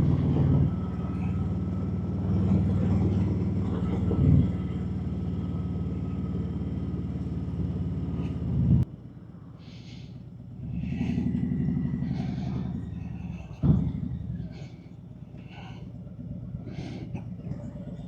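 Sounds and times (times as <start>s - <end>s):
low engine rumble: 0.0s - 18.0s
motorcycle engine running: 0.0s - 18.0s.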